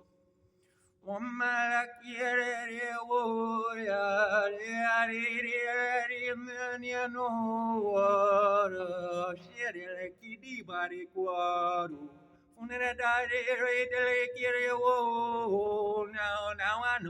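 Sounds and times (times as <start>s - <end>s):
wordless chant-like singing: 1.0s - 17.0s.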